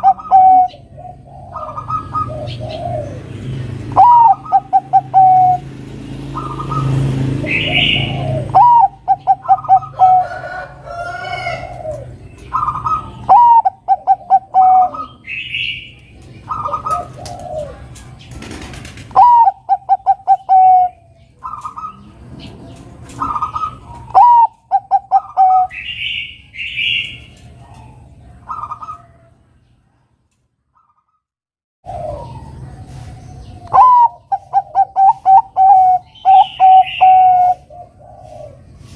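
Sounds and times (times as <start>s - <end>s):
dove cooing song: 0.0s - 29.5s, 31.8s - 38.9s.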